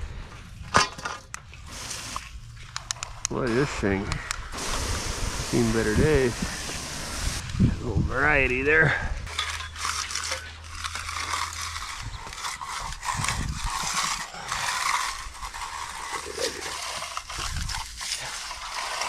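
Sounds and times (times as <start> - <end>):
concrete tool scraping concrete: 5.5 - 7.4, 8.1 - 19.0.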